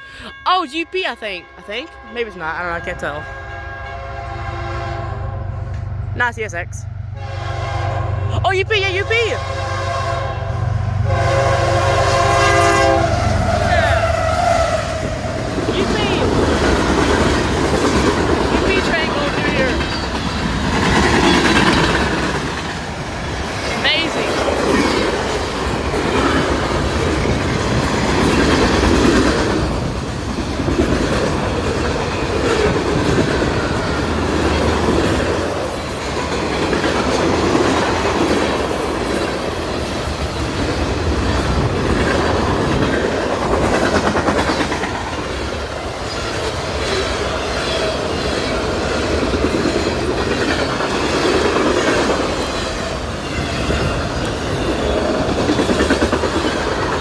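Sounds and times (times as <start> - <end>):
freight train wheels clacking on rails: 11.8 - 57.0.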